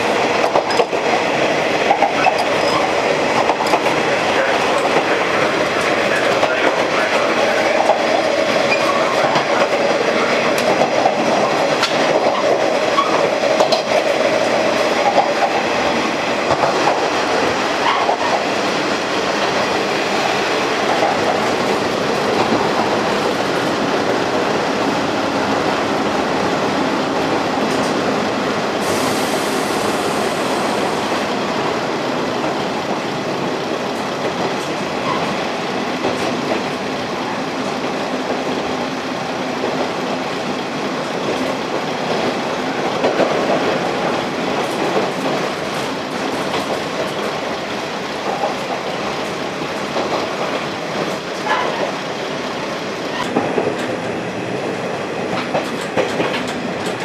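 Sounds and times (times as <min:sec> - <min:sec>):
railcar steady rumble: 0:00.0 - 0:57.0
wheels clacking over rail joints: 0:53.1 - 0:57.0.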